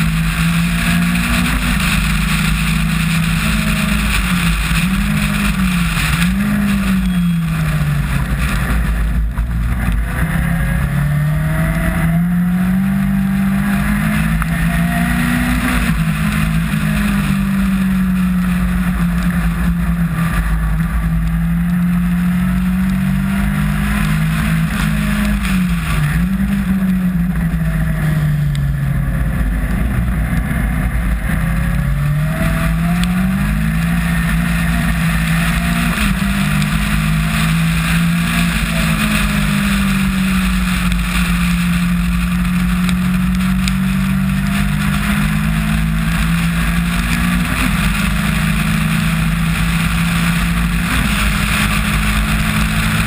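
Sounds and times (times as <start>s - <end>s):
wind and spray rushing: 0.0s - 9.3s
racing car engine revving: 0.0s - 53.0s.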